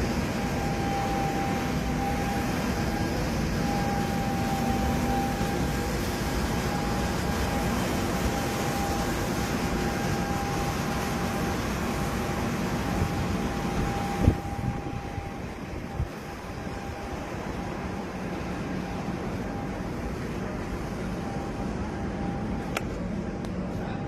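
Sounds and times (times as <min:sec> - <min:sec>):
thin steady whine: 0:00.0 - 0:24.0.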